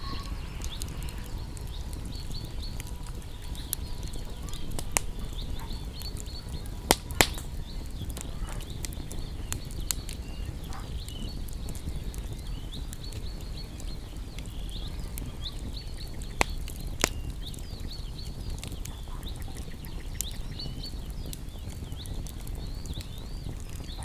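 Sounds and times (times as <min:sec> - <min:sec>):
low rumble: 0:00.0 - 0:16.7
loud fire pops: 0:00.0 - 0:24.0
songbirds twittering: 0:00.0 - 0:24.0
wood fire crackling: 0:00.0 - 0:24.0.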